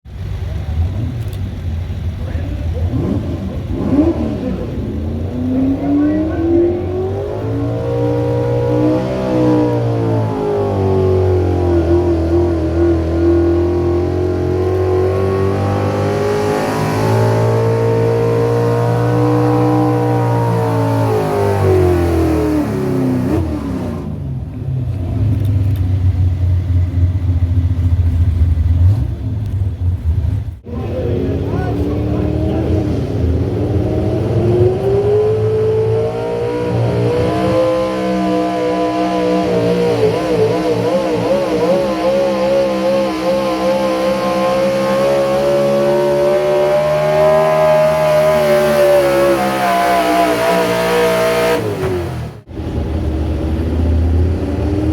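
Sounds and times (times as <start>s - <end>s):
vehicle engine running under load: 0.1s - 38.2s.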